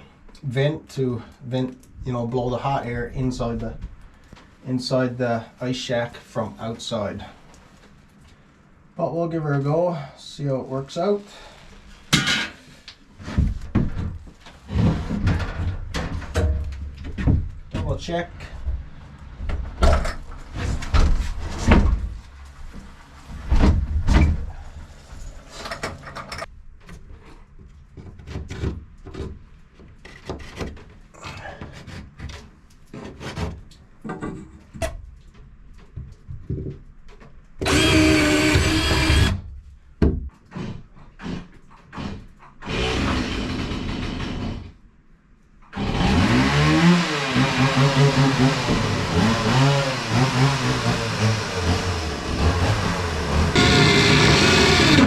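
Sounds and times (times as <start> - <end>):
clatter of parts and tools: 25.1 - 27.0
power drill running: 37.6 - 39.3, 47.0 - 55.0.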